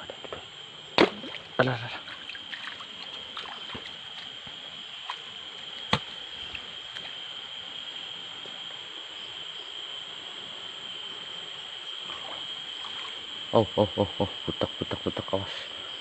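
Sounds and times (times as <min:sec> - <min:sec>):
stream water trickling: 0:00.7 - 0:09.2, 0:10.9 - 0:13.8.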